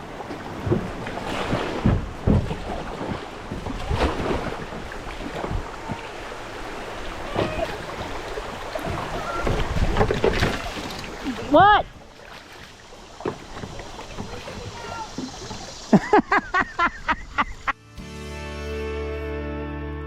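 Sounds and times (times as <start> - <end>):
wind buffeting microphone: 0.0 - 12.2
paddle and hull splashes and knocks: 0.0 - 17.6
rushing water: 0.0 - 17.7.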